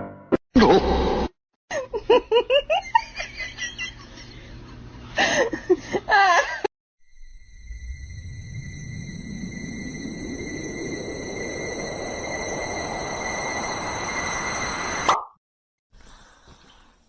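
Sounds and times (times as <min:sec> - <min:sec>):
high-pitched laughter and giggling: 0:01.7 - 0:06.7.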